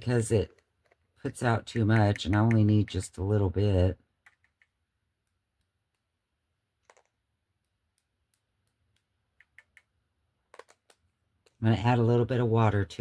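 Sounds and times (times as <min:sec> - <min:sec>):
faint small clicks: 0:01.7 - 0:02.7, 0:04.2 - 0:06.1, 0:06.8 - 0:09.9, 0:10.5 - 0:11.6.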